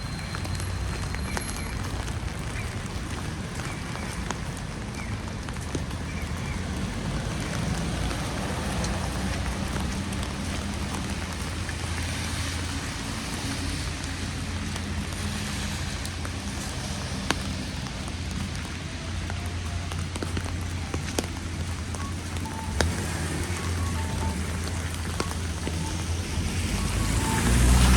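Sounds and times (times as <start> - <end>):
drips ticking: 0.0 - 27.9
wet snow falling hiss: 20.6 - 27.9.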